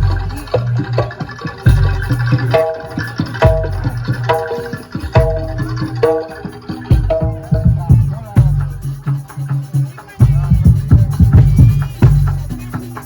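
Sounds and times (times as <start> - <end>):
deep drum strokes: 0.0 - 9.2
hand-drum patter: 0.0 - 13.0.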